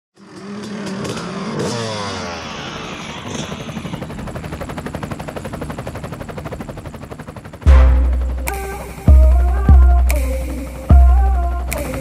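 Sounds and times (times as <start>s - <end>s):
dirt bike engine revving and puttering: 0.2s - 3.5s.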